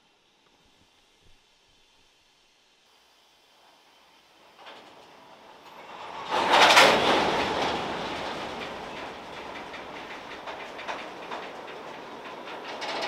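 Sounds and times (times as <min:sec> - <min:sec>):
train wheels clattering on track: 0:04.4 - 0:13.0.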